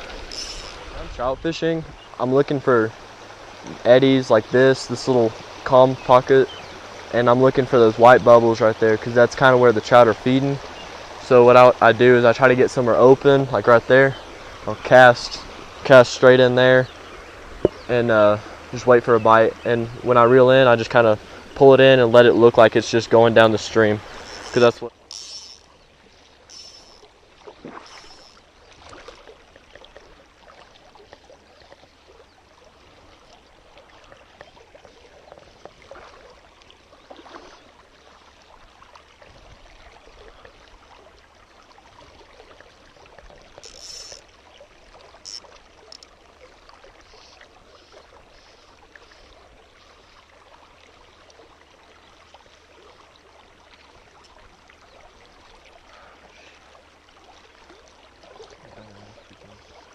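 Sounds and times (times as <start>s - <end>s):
mountain stream running over riffles: 0.0s - 59.9s.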